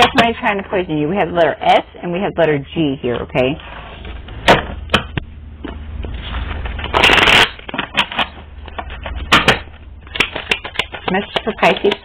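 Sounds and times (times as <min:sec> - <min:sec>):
card deck riffle: 0:06.8 - 0:07.8
cards snapping: 0:06.8 - 0:12.0.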